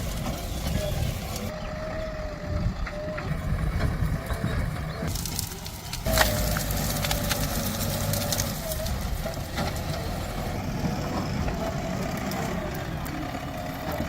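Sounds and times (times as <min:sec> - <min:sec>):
diesel engine running: 0:00.0 - 0:14.0
knocks and cracks: 0:05.1 - 0:09.9.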